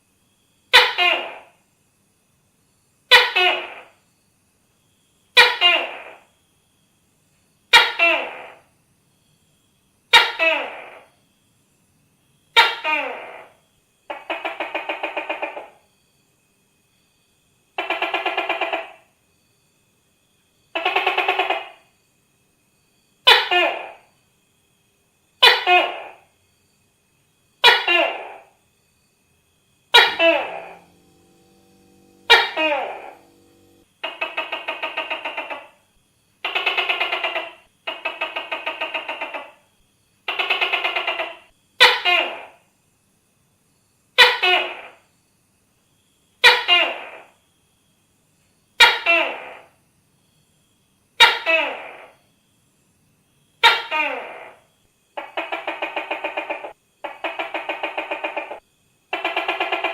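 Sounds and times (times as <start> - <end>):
gecko calling: 0.7 - 1.6, 3.1 - 4.0, 5.3 - 6.4, 7.7 - 8.7, 10.1 - 11.1, 12.5 - 15.8, 17.8 - 19.2, 20.7 - 21.9, 25.4 - 26.3, 27.6 - 28.6, 29.9 - 35.8, 36.4 - 42.6, 46.4 - 47.4, 51.2 - 52.2, 53.6 - 59.9.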